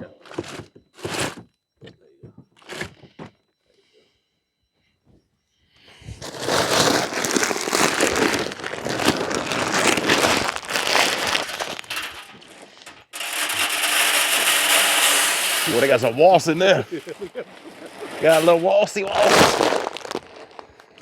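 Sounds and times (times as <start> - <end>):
corn kernels pouring: 0.3 - 1.4, 6.2 - 21.0.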